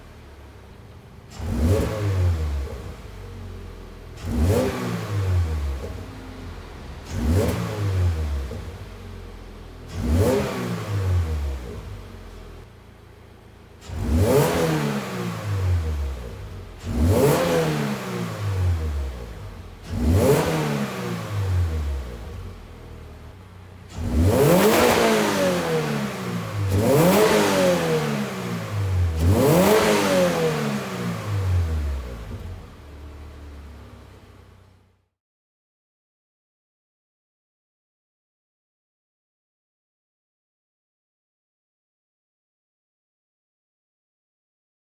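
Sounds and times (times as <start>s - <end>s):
car engine revving and idling: 0.0s - 35.1s.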